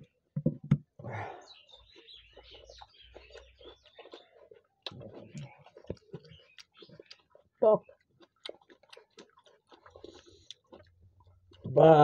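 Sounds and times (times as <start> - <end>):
wet chewing: 1.4 - 12.0
lip smacks and clicks: 1.9 - 11.0.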